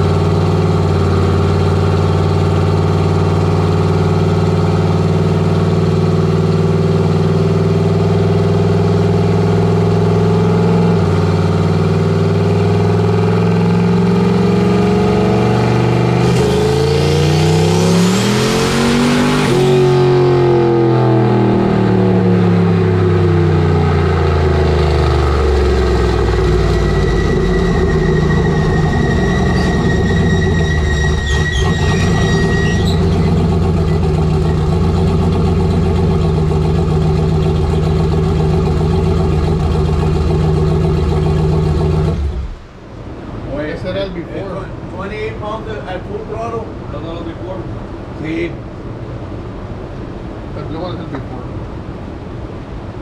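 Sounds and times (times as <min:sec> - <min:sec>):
truck engine accelerating: 0:00.0 - 0:43.2
steady high whine: 0:15.3 - 0:53.0
turbo whistle: 0:25.9 - 0:34.6.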